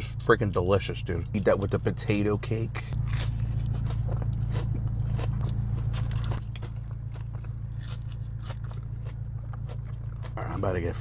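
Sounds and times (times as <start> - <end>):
low hum: 0.0 - 11.0
person chewing crispy food: 2.8 - 11.0.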